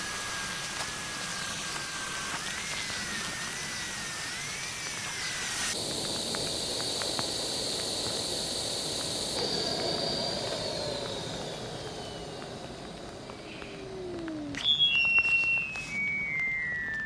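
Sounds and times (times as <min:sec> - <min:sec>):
steady hiss: 0:00.0 - 0:14.5
high whine falling in pitch: 0:00.0 - 0:17.0
lower falling tone: 0:07.2 - 0:17.0.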